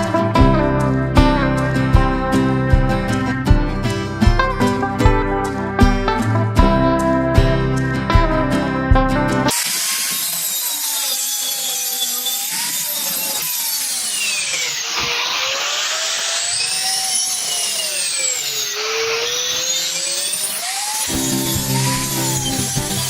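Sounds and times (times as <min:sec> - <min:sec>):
power tool motor whine: 0:09.5 - 0:23.0.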